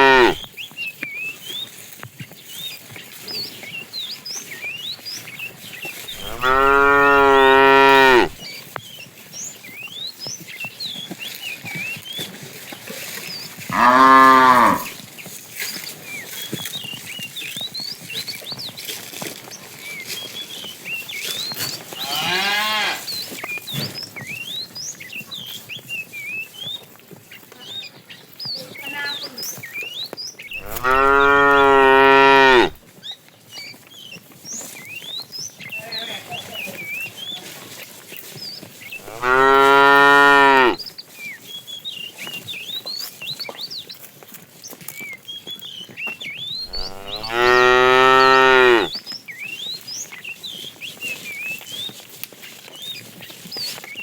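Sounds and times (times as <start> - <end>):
cows mooing: 0.0 - 0.4, 6.2 - 8.4, 13.7 - 15.0, 30.6 - 32.8, 39.0 - 40.8, 46.7 - 48.9.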